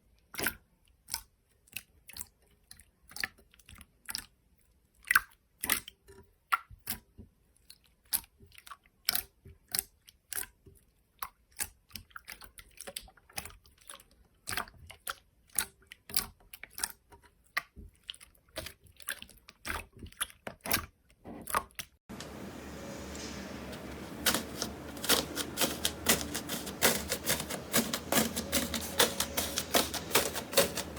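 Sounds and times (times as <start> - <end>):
steady hiss: 22.1 - 30.9.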